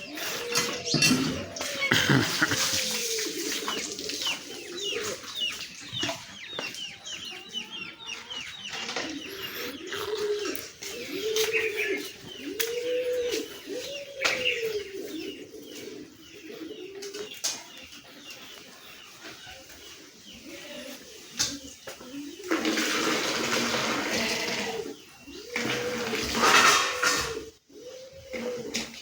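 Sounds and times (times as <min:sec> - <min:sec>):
small birds chirping: 0:00.0 - 0:23.0
farmyard fowl calling: 0:00.0 - 0:29.0.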